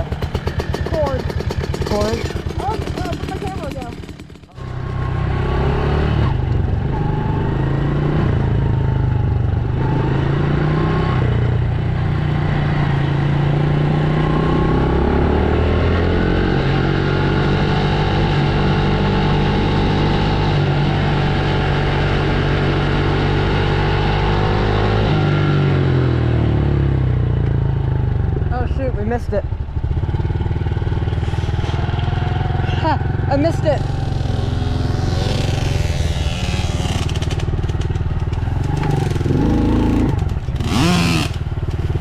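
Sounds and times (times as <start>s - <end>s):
dirt bike engine revving: 0.0s - 9.0s, 29.8s - 42.0s.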